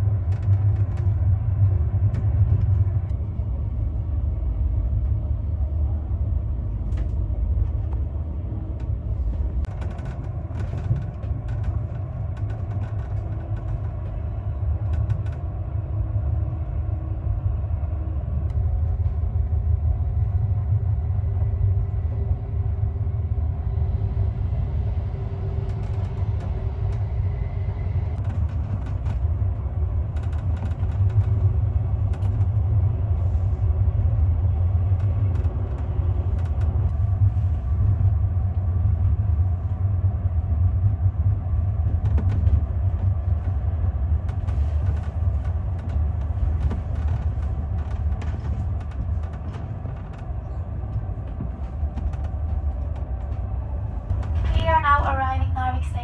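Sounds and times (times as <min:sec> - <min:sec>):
train rumbling along track: 0:00.0 - 0:56.0
clicks and creaks: 0:08.8 - 0:15.5, 0:30.1 - 0:32.6, 0:44.3 - 0:54.6.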